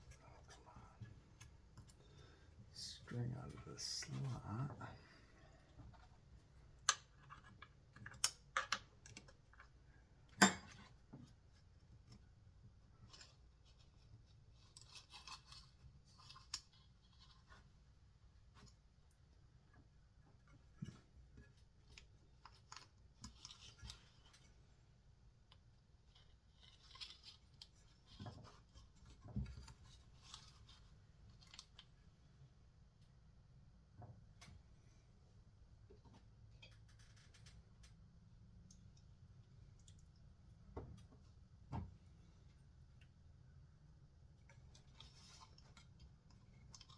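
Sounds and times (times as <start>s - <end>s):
small parts clicking and scraping: 25.5s - 32.0s, 36.6s - 38.0s.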